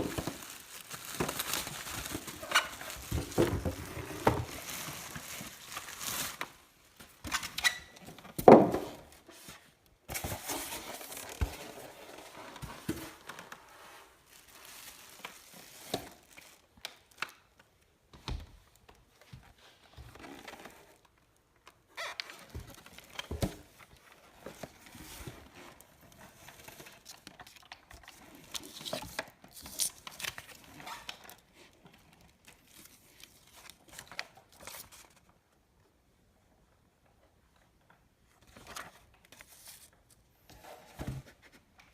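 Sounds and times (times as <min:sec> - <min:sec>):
wrapping crinkling and tearing: 0:00.0 - 0:07.2, 0:13.1 - 0:17.6, 0:24.6 - 0:35.3.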